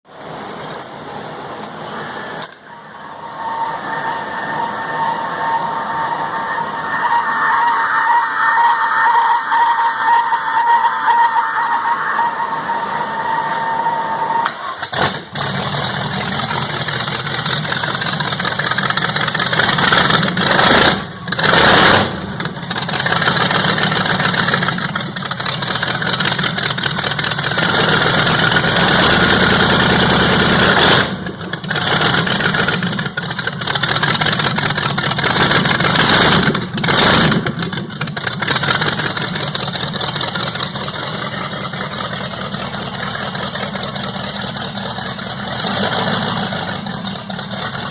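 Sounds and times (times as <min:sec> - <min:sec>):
loud unmuffled engine idling: 0:14.6 - 0:47.9.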